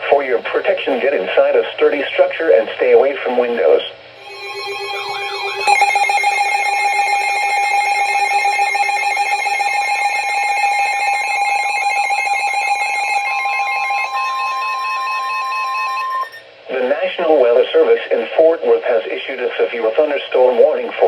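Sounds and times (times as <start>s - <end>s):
weather radio alert alarm: 4.2s - 16.4s.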